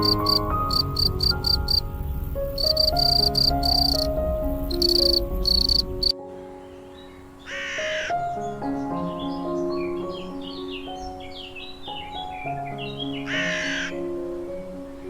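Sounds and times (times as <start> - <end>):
cricket chirping: 0.0 - 6.2
soft background melody: 0.0 - 15.0.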